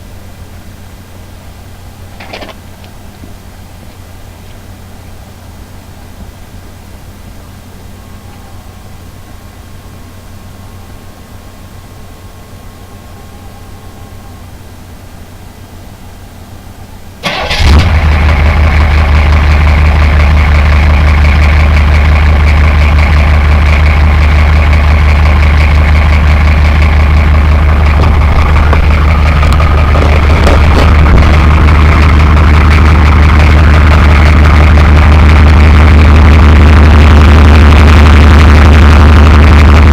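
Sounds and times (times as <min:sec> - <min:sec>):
diesel engine starting and idling: 0:17.2 - 0:39.9.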